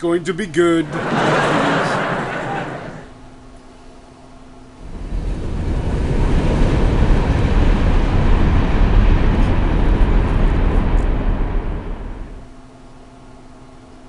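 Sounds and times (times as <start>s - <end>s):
heavy train rumble: 0.9s - 3.1s, 4.8s - 12.5s.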